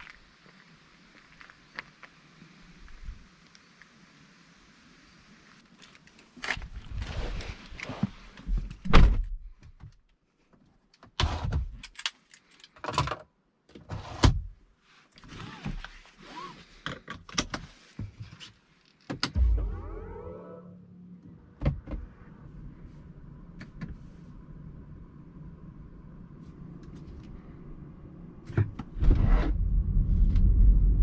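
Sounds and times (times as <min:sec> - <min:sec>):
heavy thud: 0:19.4 - 0:20.6
steady low hum: 0:19.4 - 0:28.4.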